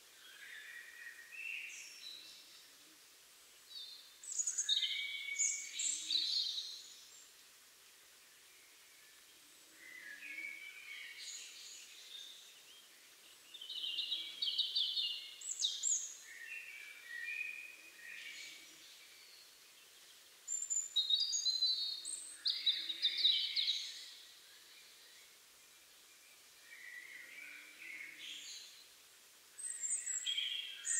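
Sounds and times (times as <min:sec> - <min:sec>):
robin singing: 0:03.7 - 0:07.3, 0:09.8 - 0:25.4, 0:26.0 - 0:30.9.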